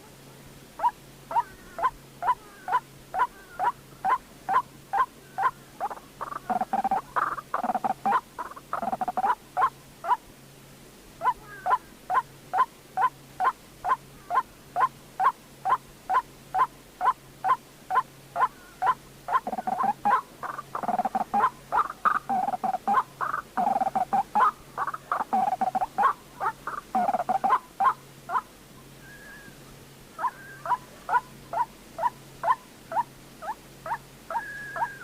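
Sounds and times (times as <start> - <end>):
bird chattering: 0.8 - 9.7, 17.9 - 28.4
waterhen calling: 0.8 - 10.2, 11.2 - 35.0.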